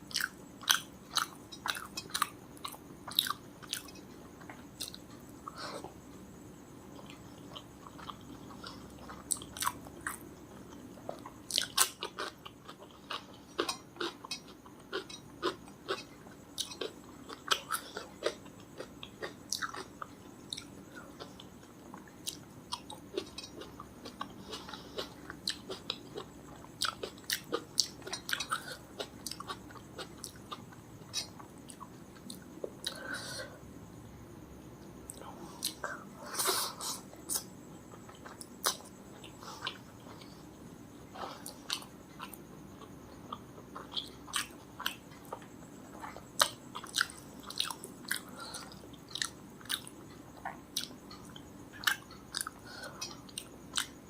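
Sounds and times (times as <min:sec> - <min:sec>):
chewing with wet mouth clicks: 0:11.1 - 0:33.0, 0:41.4 - 0:54.0.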